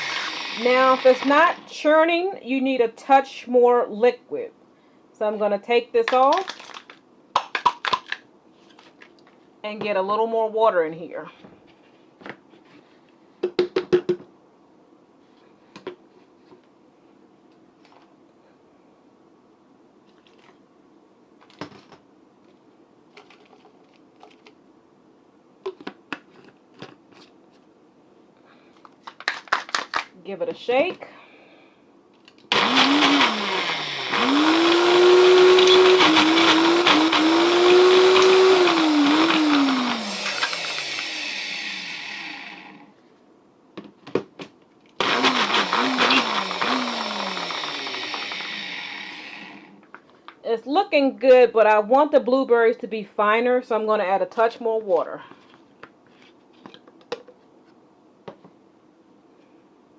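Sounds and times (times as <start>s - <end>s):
blender motor blending: 0.0s - 1.7s, 32.5s - 42.9s, 45.0s - 49.8s.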